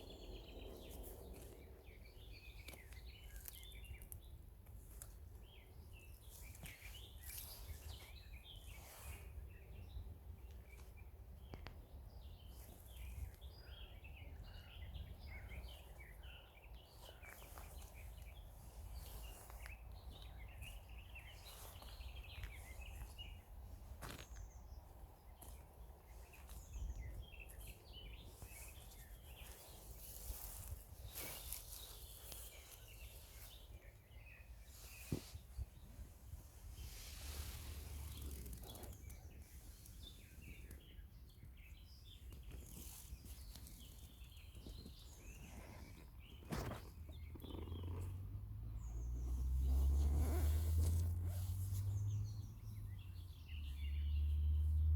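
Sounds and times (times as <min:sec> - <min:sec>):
steady low rumble: 0:00.0 - 0:02.6
songbirds chirping: 0:00.0 - 0:54.9.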